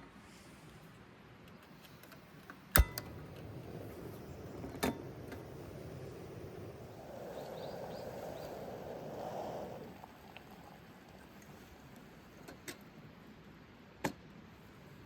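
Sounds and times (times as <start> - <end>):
soft whooshing: 3.4 - 11.8.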